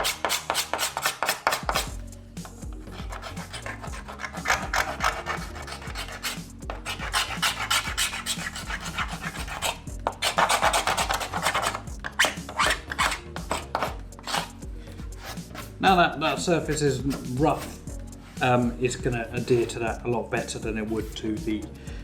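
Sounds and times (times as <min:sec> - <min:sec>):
sanding plastic panel: 0:00.0 - 0:01.9, 0:02.9 - 0:14.5.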